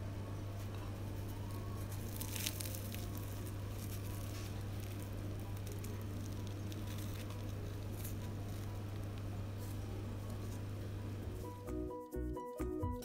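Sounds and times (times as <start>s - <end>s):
steady low hum: 0.0s - 13.0s
fried crust crackling: 0.6s - 11.7s.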